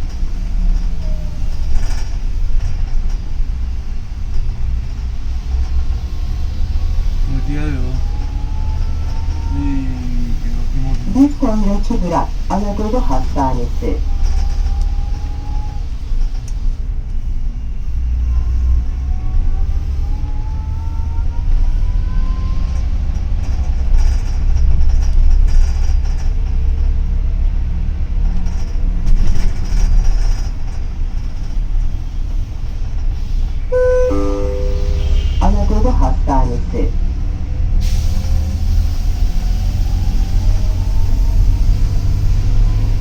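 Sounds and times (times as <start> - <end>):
bus engine and road rumble: 0.0 - 43.0
faint rising whine: 33.7 - 36.8.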